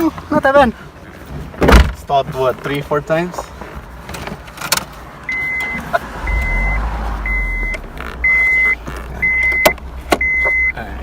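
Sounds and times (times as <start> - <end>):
car warning chime beeping: 5.3 - 10.8.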